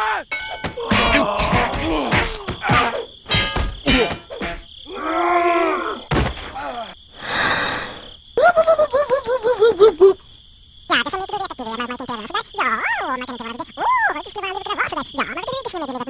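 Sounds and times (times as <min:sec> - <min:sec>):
cartoon whacks and thuds: 0:00.6 - 0:04.6, 0:06.1 - 0:06.6.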